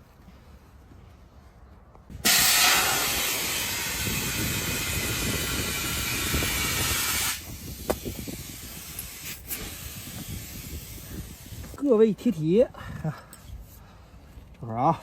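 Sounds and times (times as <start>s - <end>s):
compressed air hissing: 2.1s - 11.8s.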